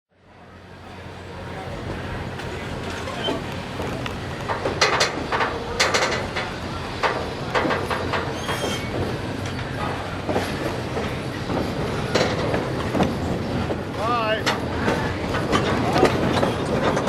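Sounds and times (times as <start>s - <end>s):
train rumble: 0.1s - 17.0s
faint high wheel squeal: 0.5s - 4.4s, 7.9s - 10.8s
train wheels clacking on rail joints: 0.8s - 17.0s.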